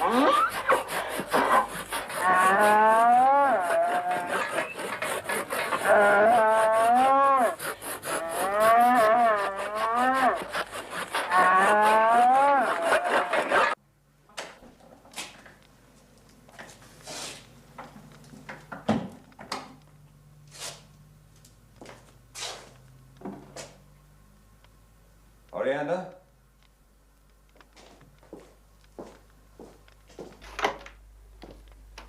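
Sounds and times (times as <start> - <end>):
saw rasping through horn: 0.0 - 13.8
cow bellowing in distress: 2.1 - 4.7, 5.7 - 10.5, 11.2 - 13.8.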